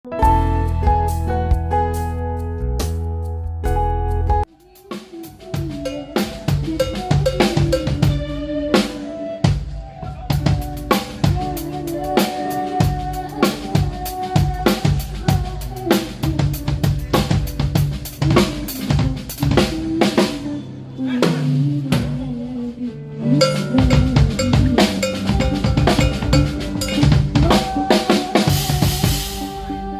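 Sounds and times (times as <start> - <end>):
drum kit groove: 0.2 - 20.5, 23.4 - 29.9
held pitched notes: 4.6 - 14.2, 23.3 - 29.6.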